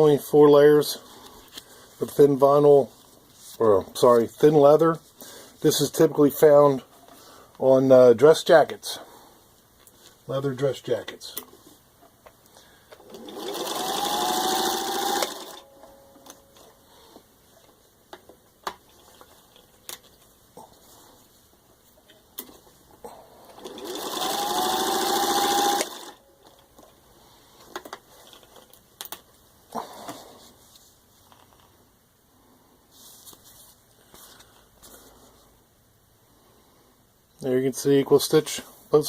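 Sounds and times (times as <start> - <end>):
sewing machine stitching: 13.0 - 15.7, 23.5 - 26.2.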